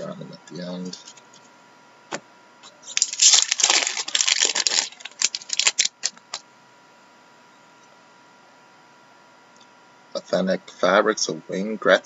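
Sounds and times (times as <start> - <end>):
plastic packaging crinkling: 2.9 - 6.4
short plastic crackles: 2.9 - 6.4.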